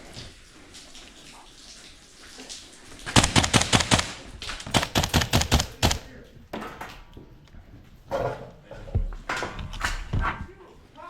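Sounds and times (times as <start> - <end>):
airsoft gunshots: 3.1 - 6.2.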